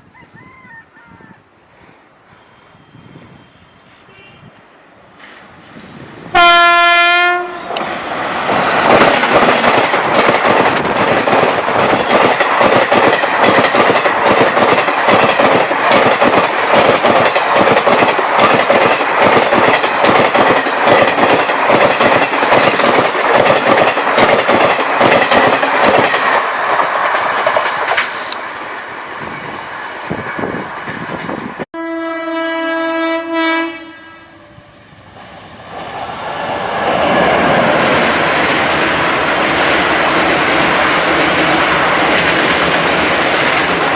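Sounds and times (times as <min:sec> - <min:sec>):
train rushing past: 0:02.0 - 0:43.9
locomotive horn blast: 0:06.3 - 0:07.8, 0:31.8 - 0:34.7.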